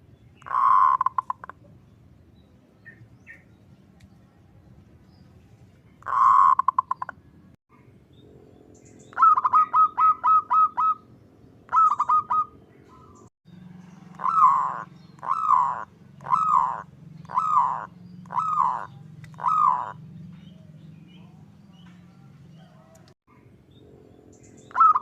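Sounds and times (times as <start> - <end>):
dove calling: 0.4 - 1.8, 6.0 - 7.3, 8.2 - 25.0.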